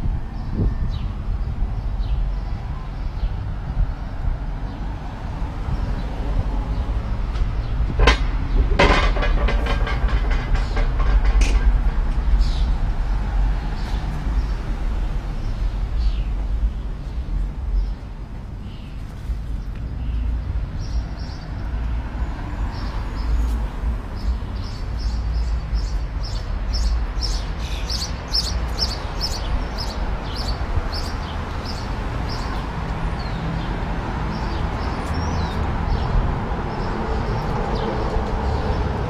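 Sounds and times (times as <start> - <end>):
scooter rolling on sidewalk: 0.9 - 39.0
bird chirping: 24.2 - 33.7.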